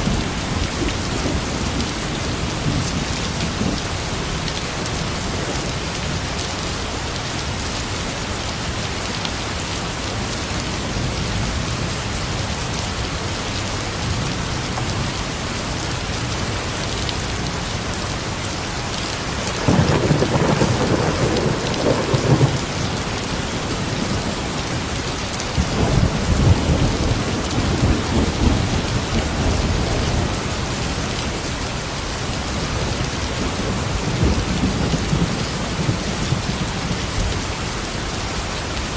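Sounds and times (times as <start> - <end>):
steady rain falling: 0.0 - 38.9
thunder rumbling: 19.2 - 31.4, 32.6 - 37.4.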